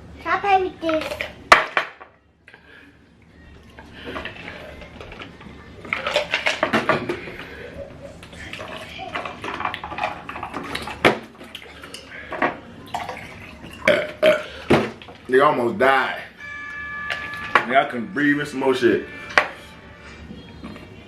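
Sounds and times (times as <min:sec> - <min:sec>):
indistinct voices talking: 0:15.9 - 0:21.0.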